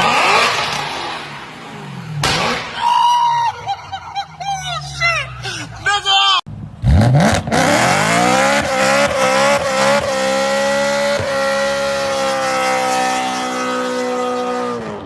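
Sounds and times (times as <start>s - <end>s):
car engine revving: 0.0s - 2.8s, 6.5s - 15.0s.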